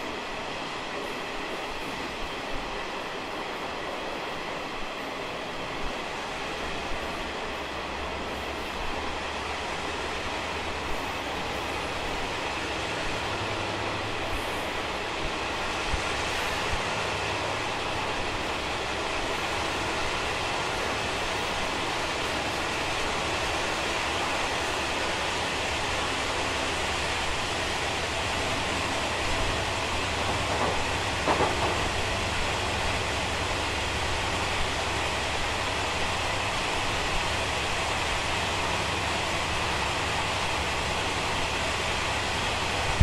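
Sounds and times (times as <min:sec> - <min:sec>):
train rumble in tunnel: 0:00.0 - 0:43.0
loud knocks: 0:30.1 - 0:32.2.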